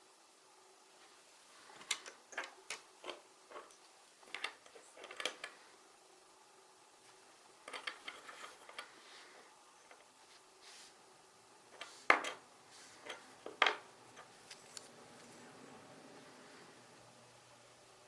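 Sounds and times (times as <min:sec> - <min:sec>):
plastic building bricks clicking: 0:07.6 - 0:08.9.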